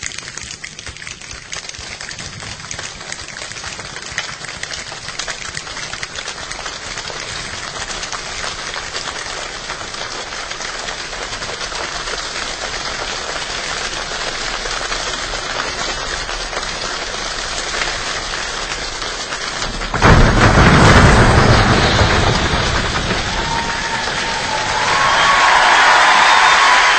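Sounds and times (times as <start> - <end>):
hands imitating rain: 23.4 - 26.9.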